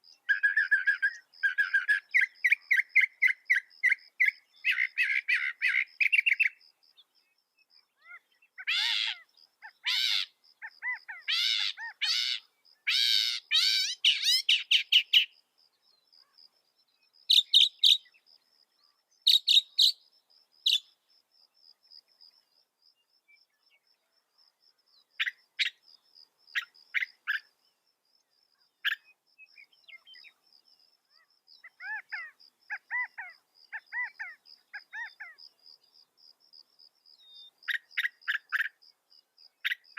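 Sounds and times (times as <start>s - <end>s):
mockingbird singing: 8.0s - 15.4s, 31.6s - 35.4s.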